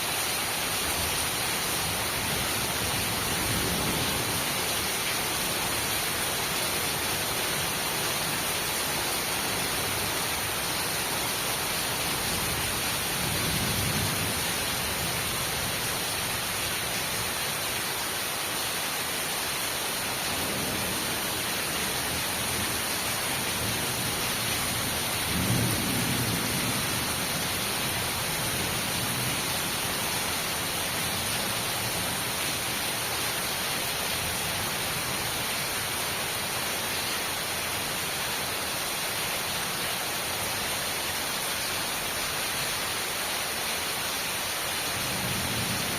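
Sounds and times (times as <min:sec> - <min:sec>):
heavy rain hissing: 0:00.0 - 0:45.9
low rumbles of thunder: 0:23.7 - 0:27.4.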